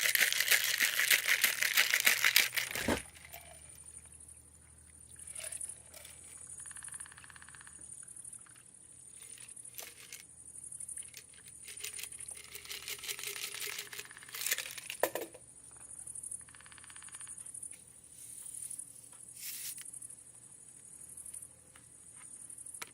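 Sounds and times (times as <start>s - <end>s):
crinkling: 0.0s - 3.6s.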